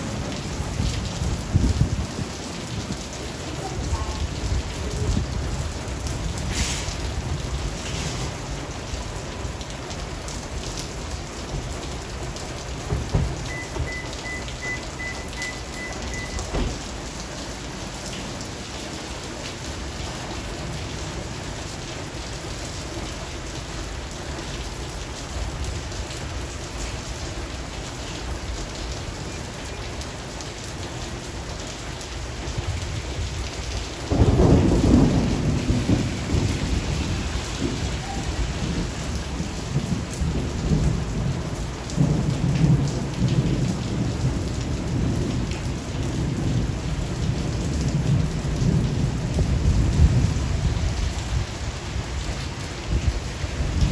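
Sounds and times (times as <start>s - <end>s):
faint low thunder rumbles: 0.0s - 18.5s, 32.4s - 53.9s
steady rain: 0.0s - 53.9s
loud roll of thunder: 34.0s - 51.2s.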